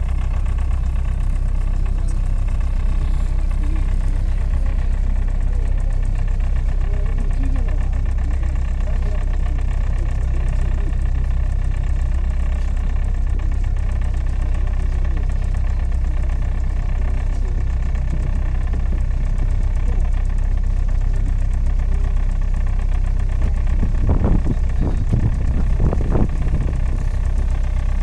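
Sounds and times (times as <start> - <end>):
boat engine running: 0.0 - 28.0
faint voices: 1.2 - 21.6.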